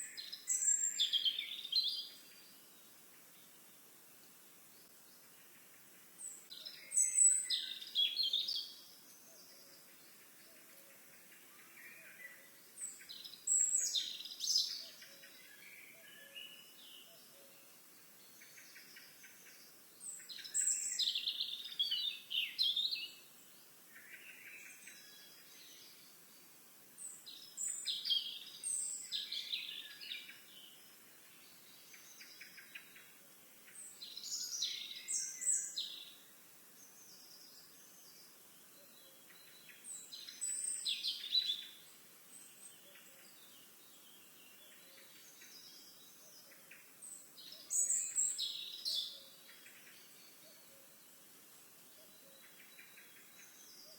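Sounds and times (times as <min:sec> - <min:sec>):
bird chirps: 0:00.0 - 0:02.6, 0:06.2 - 0:10.8, 0:11.4 - 0:23.3, 0:27.0 - 0:36.2, 0:36.8 - 0:50.9
faint outdoor background: 0:00.0 - 0:53.9
songbird singing: 0:00.0 - 0:53.9.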